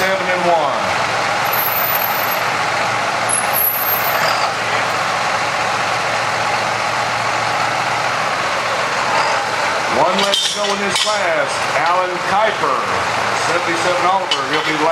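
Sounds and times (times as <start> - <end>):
tractor engine running: 0.0 - 10.2.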